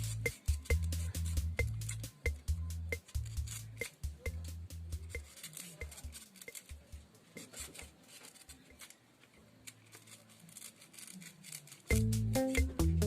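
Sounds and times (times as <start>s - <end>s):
scissors snipping husk fibre: 0.0s - 2.2s, 5.1s - 9.0s, 9.7s - 12.8s.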